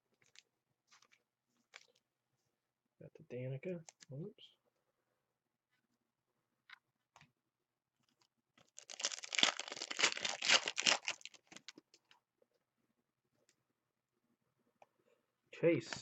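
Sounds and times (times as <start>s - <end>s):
wrapper tearing and crinkling: 8.6s - 12.0s.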